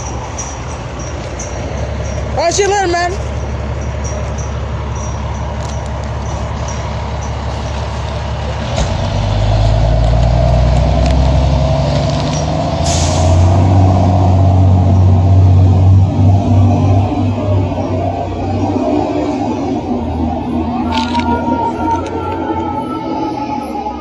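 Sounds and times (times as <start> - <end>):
fire truck engine revving: 3.6 - 24.0
air brake hiss: 12.8 - 13.5.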